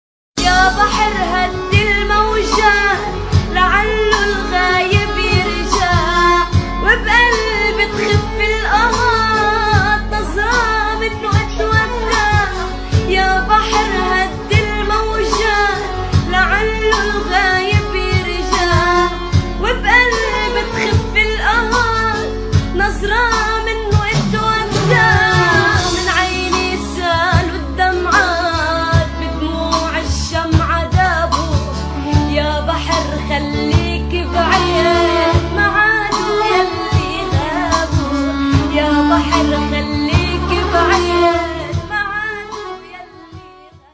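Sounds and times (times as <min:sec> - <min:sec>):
steady drum beat: 0:00.4 - 0:43.5
person singing: 0:00.4 - 0:43.9
deep drum hits: 0:23.8 - 0:29.2.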